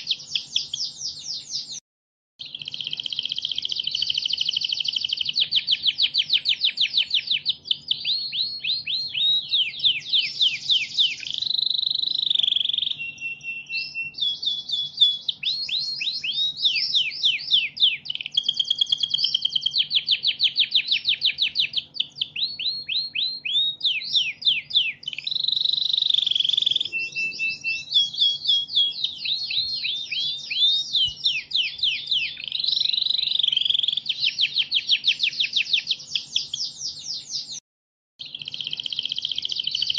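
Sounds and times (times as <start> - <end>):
songbird chirps and trills: 0.0 - 1.8, 2.4 - 37.6, 38.2 - 39.9.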